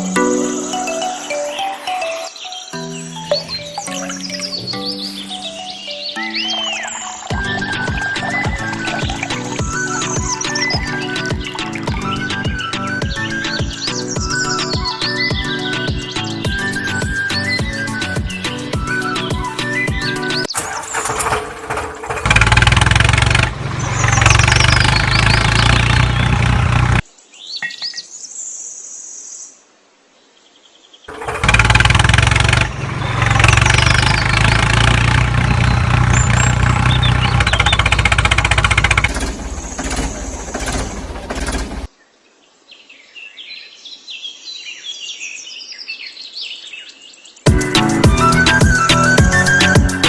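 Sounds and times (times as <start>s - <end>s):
birds chirping: 0.0s - 21.4s, 23.8s - 29.4s, 32.0s - 50.0s
small engine running: 20.6s - 27.0s, 31.1s - 41.9s.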